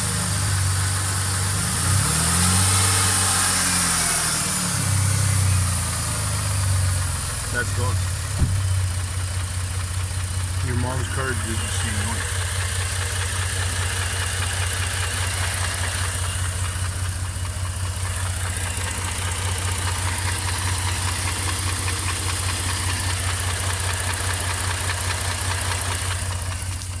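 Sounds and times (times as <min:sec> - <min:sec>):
car engine idling: 0:00.0 - 0:27.0
fast engine knocking: 0:05.6 - 0:27.0.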